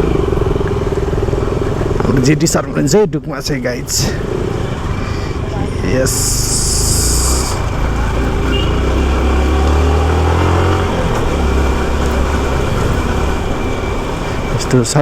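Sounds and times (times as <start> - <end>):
motorcycle engine running: 0.0 - 2.9, 3.5 - 15.0
road and wind noise: 0.0 - 15.0
loud hiss: 6.1 - 7.7.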